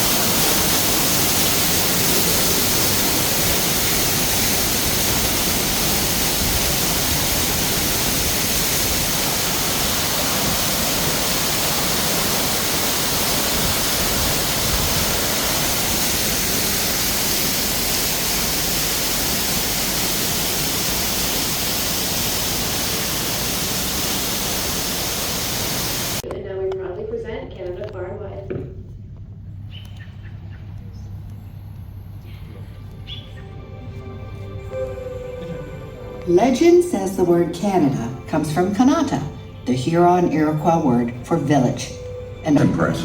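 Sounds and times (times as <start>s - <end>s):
falling water rushing: 0.0s - 26.2s.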